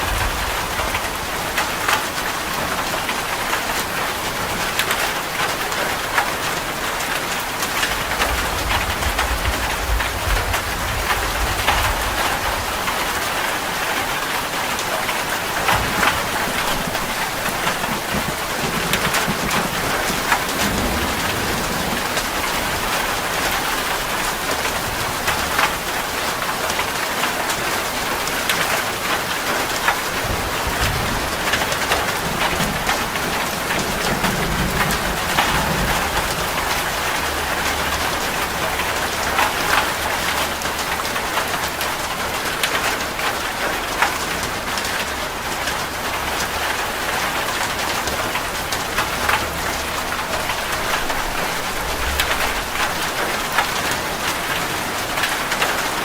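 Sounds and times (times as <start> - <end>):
rain on a hard surface: 0.0 - 56.0
low rumble: 7.9 - 13.0.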